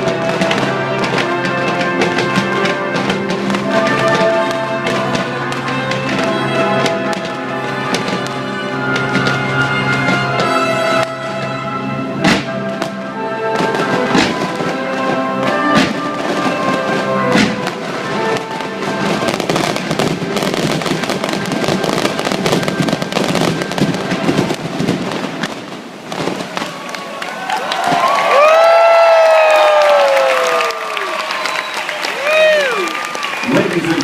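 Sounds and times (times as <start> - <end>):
music: 0.0 - 25.6
fireworks bursting: 0.0 - 34.0.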